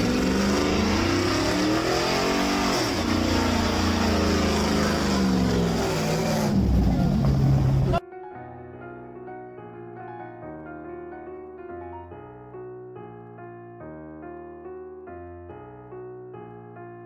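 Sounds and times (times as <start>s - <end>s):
car engine revving hard: 0.0s - 8.0s.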